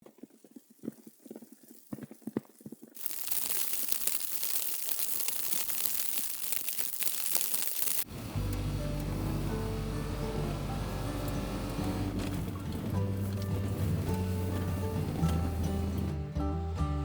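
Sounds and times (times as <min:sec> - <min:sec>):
low crunching and crackling: 0:00.0 - 0:16.2
loud rushing crackling hiss: 0:03.0 - 0:08.4
music: 0:08.1 - 0:17.0.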